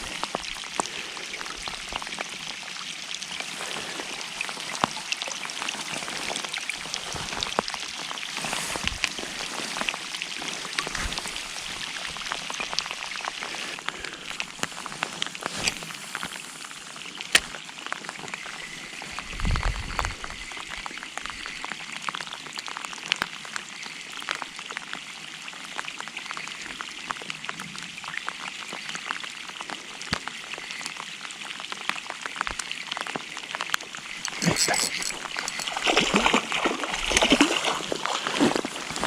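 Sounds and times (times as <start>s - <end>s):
rain falling: 0.0s - 39.0s.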